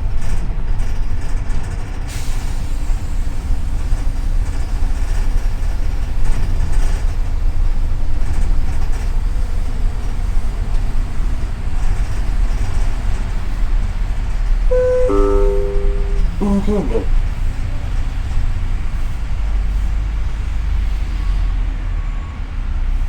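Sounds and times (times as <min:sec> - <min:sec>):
bus engine and road rumble: 0:00.0 - 0:14.6.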